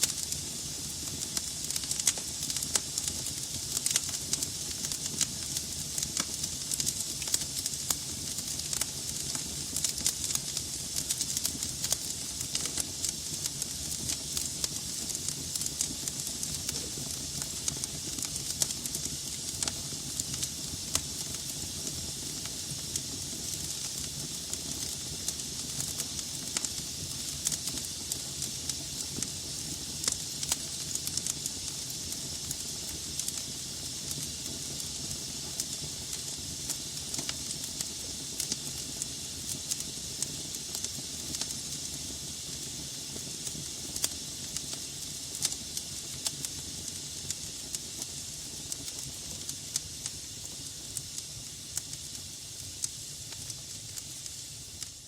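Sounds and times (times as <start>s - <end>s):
fire flames hissing: 0.0s - 55.0s
logs crackling and popping: 1.1s - 21.5s.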